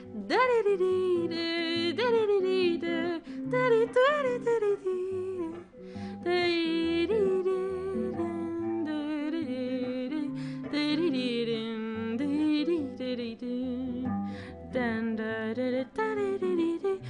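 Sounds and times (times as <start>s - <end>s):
woman singing wordlessly: 0.0s - 17.0s.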